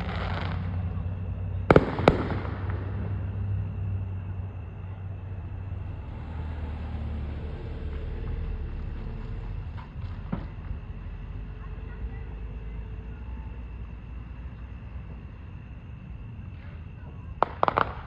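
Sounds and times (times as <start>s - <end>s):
steady low rumble: 0.0s - 6.3s.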